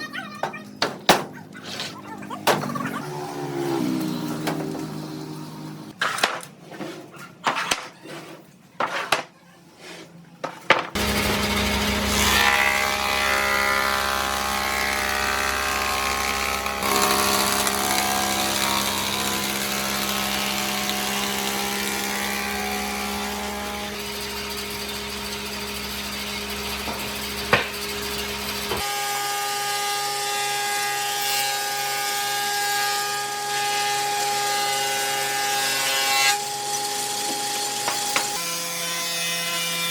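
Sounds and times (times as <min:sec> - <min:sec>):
power tool cutting wood: 0:02.8 - 0:06.0, 0:10.9 - 0:39.9
power tool high steady whine: 0:11.0 - 0:30.0
sharp knocks: 0:26.8 - 0:27.9.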